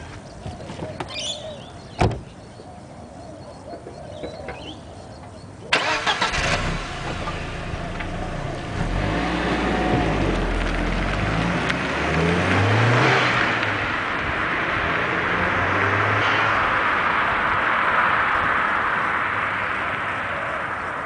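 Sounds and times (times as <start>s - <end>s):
car engine revving: 5.7s - 19.6s.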